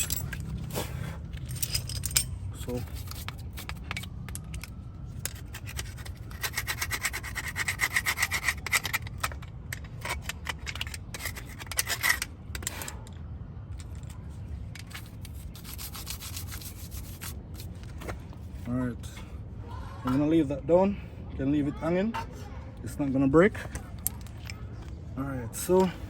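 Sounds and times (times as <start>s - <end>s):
hand tool rasping metal: 5.4s - 9.1s.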